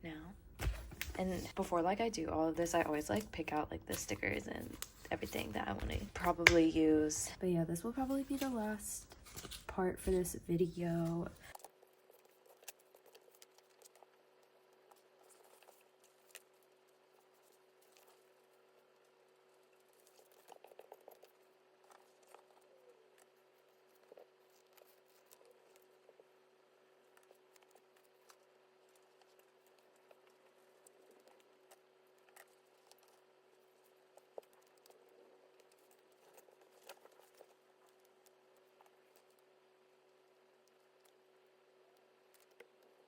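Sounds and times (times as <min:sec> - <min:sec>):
faint steady hum: 0:00.0 - 0:43.0
stickers being handled: 0:00.6 - 0:07.2, 0:07.8 - 0:11.6.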